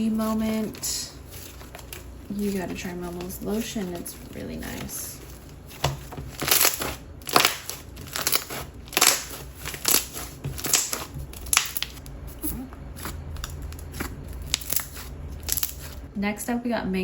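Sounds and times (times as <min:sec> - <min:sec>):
slime popping and crackling: 0:05.6 - 0:12.0, 0:13.0 - 0:16.0.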